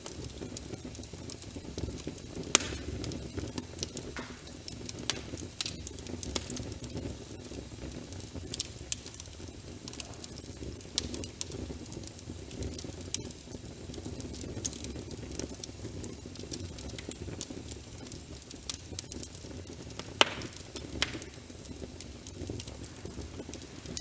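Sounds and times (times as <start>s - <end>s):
wood fire crackling and popping: 0.0s - 24.0s
muffled rush of rain: 22.3s - 24.0s.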